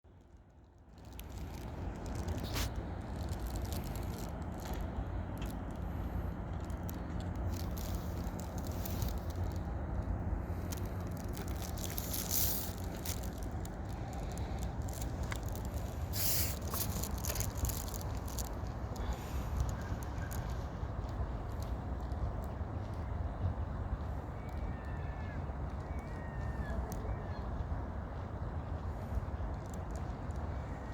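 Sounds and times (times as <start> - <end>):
low rumble: 0.8 - 23.7.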